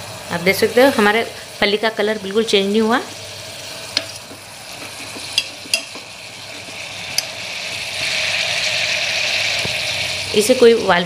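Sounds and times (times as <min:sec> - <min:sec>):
beans sizzling in hot oil: 0:00.0 - 0:11.0
metal spatula stirring: 0:03.9 - 0:07.4.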